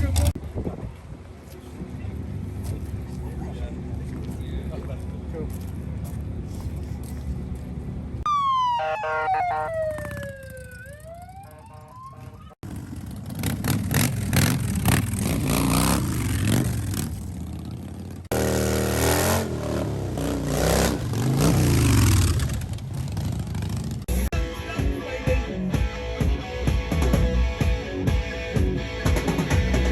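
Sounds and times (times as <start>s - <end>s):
motorcycle engines revving: 1.5s - 24.3s
siren-like wail: 8.3s - 12.6s.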